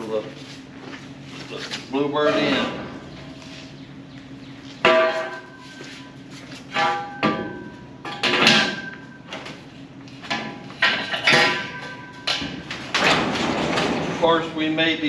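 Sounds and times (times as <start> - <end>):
metal door squealing and ringing: 2.2 - 3.1.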